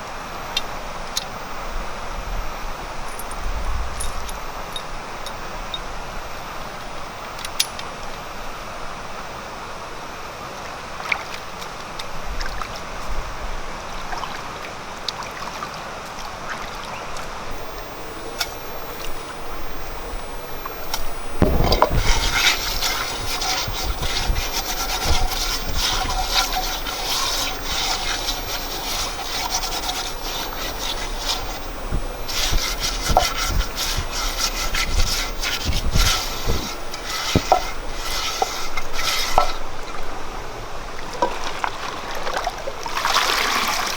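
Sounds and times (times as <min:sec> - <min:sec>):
small clicks: 0:00.0 - 0:09.4, 0:16.0 - 0:40.0
rough scraping and rubbing: 0:17.6 - 0:40.1.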